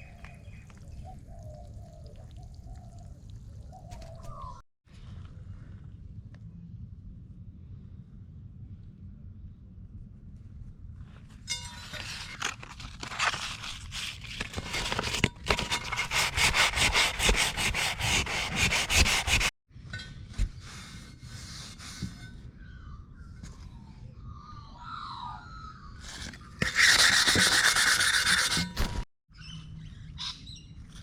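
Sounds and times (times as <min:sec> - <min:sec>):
handling sounds: 0:11.5 - 0:16.9
hand scrubbing wheel part: 0:11.7 - 0:19.5, 0:26.1 - 0:28.9.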